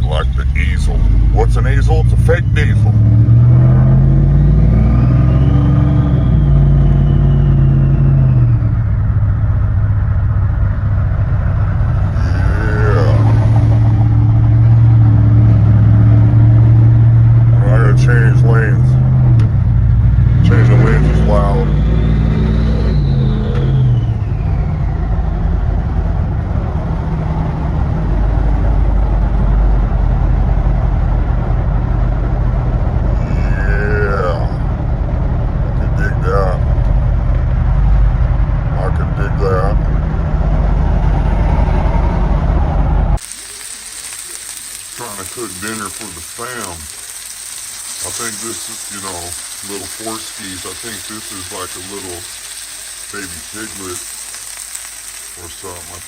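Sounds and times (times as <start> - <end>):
pickup truck engine accelerating: 0.0 - 43.2
high whine: 0.0 - 56.0
faint turbo whistle: 4.4 - 9.0, 21.6 - 25.7.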